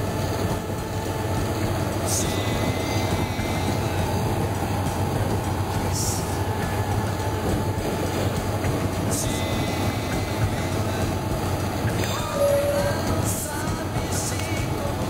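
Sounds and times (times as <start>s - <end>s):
railcar engine drone: 0.0s - 15.0s
wheel-on-rail rumble: 0.0s - 15.0s.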